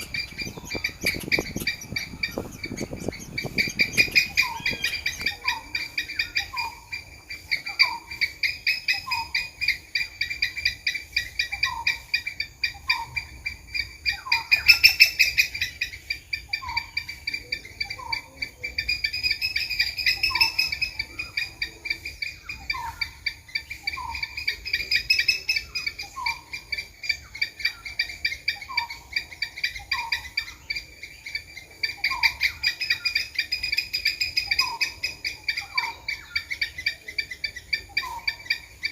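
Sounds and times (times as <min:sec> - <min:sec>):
squirrel chirps: 0:00.0 - 0:38.9.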